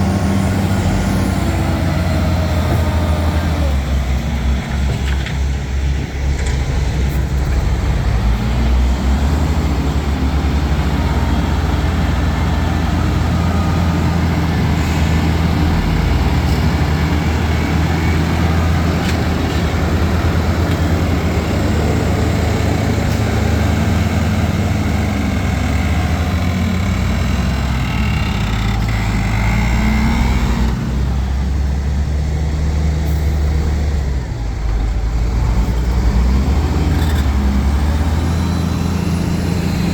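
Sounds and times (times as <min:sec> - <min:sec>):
heavy machinery diesel engine: 0:00.0 - 0:39.9.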